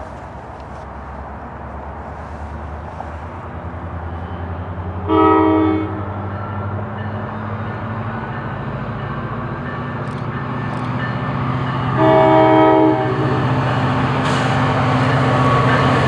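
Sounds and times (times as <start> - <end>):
diesel locomotive engine rumbling: 0.0 - 16.0
train horn blast: 5.0 - 6.1, 11.9 - 13.5.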